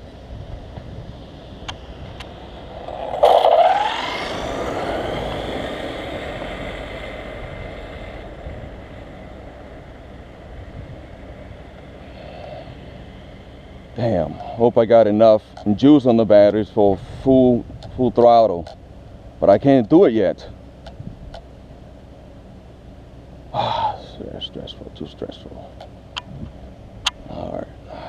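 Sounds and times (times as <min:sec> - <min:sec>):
rc truck electric motor whine: 0:01.6 - 0:10.5.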